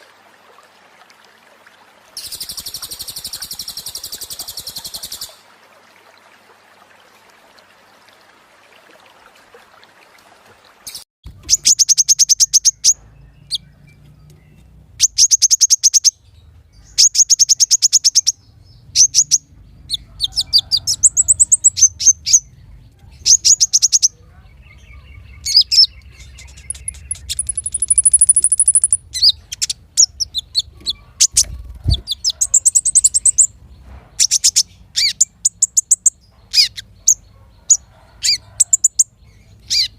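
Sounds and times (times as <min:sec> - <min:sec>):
songbird singing high trills: 0:23.2 - 0:33.5.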